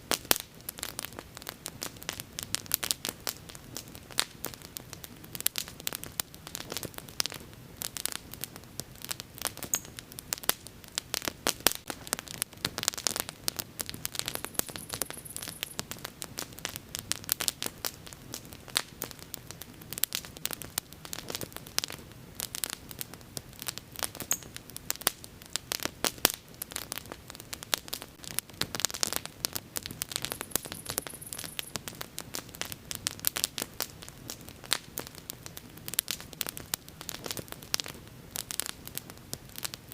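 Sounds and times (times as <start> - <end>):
bonfire crackling: 0.0 - 39.9
faint high hiss: 7.3 - 17.3, 19.6 - 33.9.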